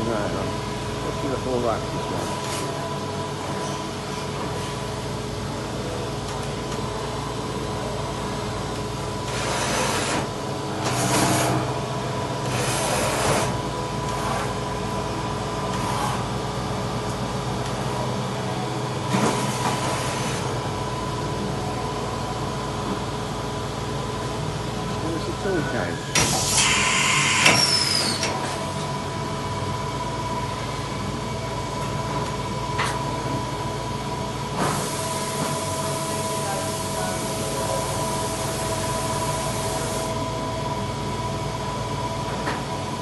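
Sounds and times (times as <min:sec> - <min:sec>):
machining centre humming: 0:00.0 - 0:43.0.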